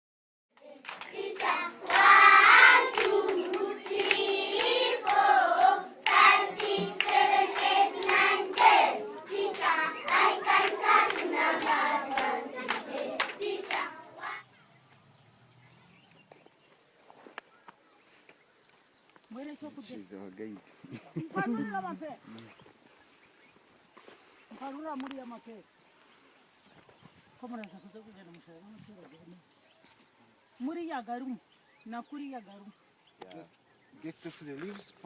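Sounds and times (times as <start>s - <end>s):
people singing together: 0.6s - 14.4s
hand clapping: 0.8s - 14.4s.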